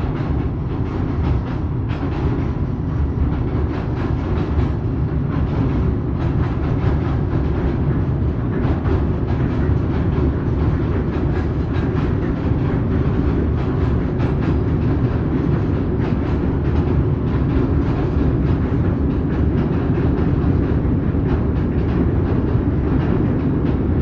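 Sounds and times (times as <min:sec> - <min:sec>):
train wheels rumbling on rails: 0:00.0 - 0:24.0
wheels clacking over rail joints: 0:00.0 - 0:24.0.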